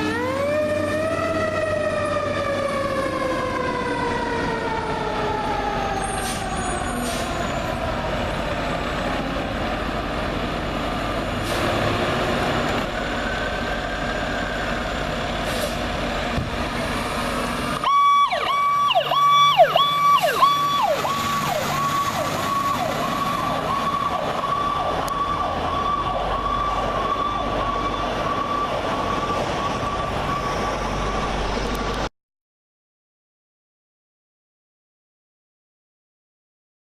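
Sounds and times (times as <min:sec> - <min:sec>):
yelping siren: 0:00.0 - 0:08.8, 0:17.8 - 0:31.1
wailing siren: 0:00.0 - 0:15.3, 0:16.8 - 0:32.1.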